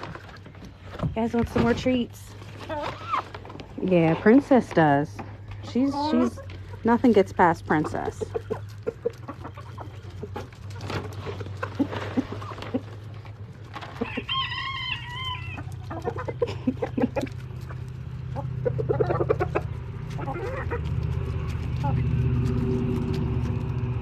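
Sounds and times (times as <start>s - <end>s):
chickens clucking: 0.0s - 24.0s
rooster crowing: 14.0s - 15.7s.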